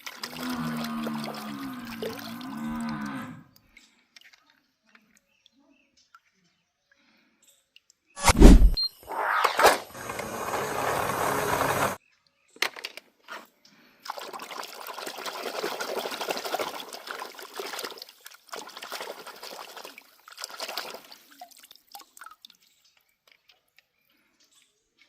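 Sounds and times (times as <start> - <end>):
water running and trickling: 0.0 - 3.4, 14.1 - 24.0.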